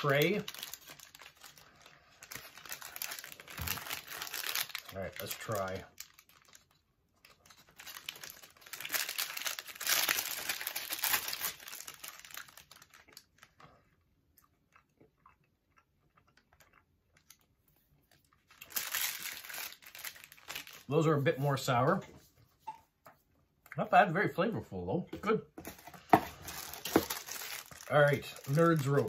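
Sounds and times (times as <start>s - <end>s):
person chewing candy: 0.2s - 20.7s.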